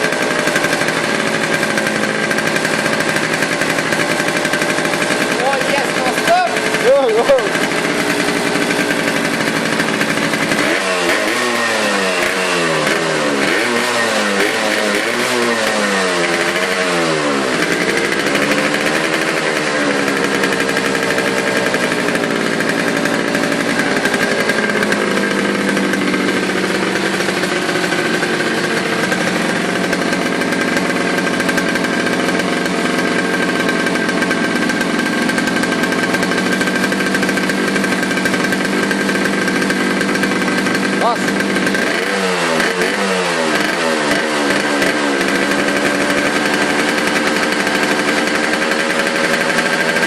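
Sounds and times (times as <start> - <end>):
motorcycle two-stroke engine revving: 0.0 - 50.0.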